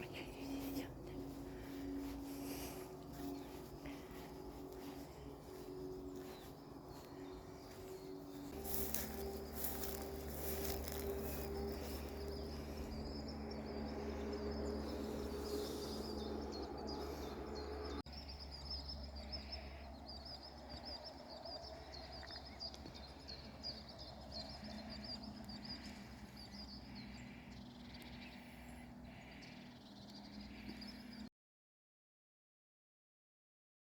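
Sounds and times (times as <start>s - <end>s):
steady low rumble: 0.0s - 31.1s
birds chirping and singing: 0.0s - 31.3s.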